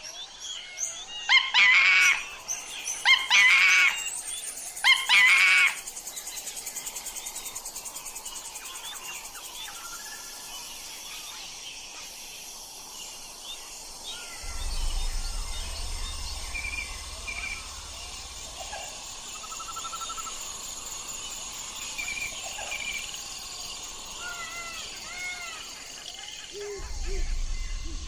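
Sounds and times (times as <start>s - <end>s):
insects humming: 0.0s - 28.0s
birds chirping: 0.2s - 28.0s
low rumble: 14.2s - 20.9s, 26.8s - 28.0s.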